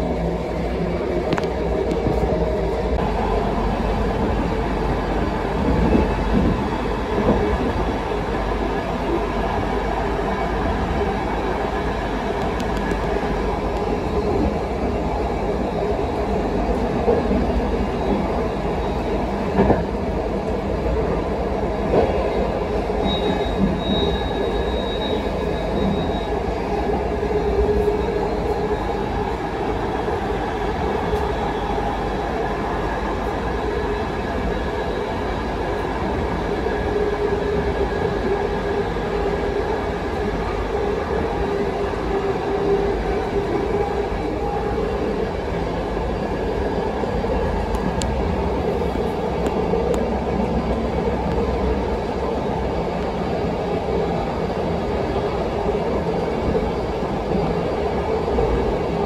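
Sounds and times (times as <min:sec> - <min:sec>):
train rumbling on track: 0:00.0 - 0:59.0
high wheel squeal: 0:23.0 - 0:26.5.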